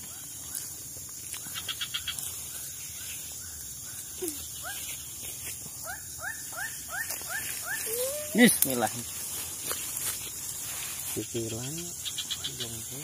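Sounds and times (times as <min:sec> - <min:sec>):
steady high hiss: 0:00.0 - 0:13.0
bird calling rising notes: 0:07.6 - 0:08.6.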